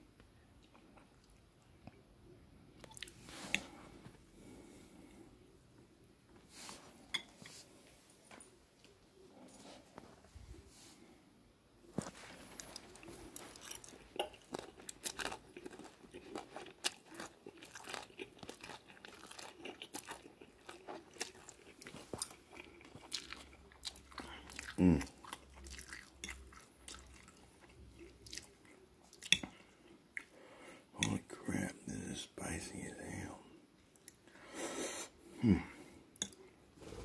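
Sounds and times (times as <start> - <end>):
person chewing noodles: 2.8 - 3.8, 12.0 - 30.4.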